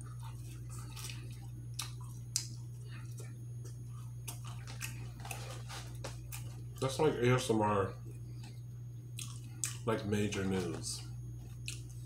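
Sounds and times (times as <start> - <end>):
person chewing: 0.0 - 6.8, 8.0 - 9.9, 11.0 - 12.0
steady low hum: 0.0 - 12.0
wet lip and tongue smacks: 1.0 - 2.7.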